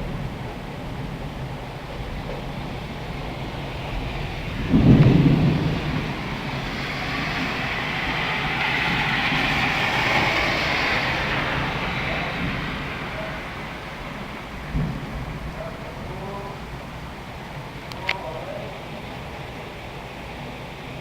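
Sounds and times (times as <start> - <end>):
thunder clap and rumble: 0.0 - 17.9
steady rain: 0.0 - 21.0.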